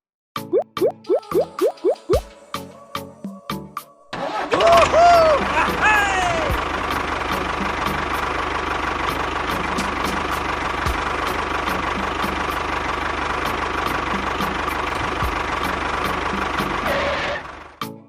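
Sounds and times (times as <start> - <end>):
small engine idling: 4.2 - 17.8.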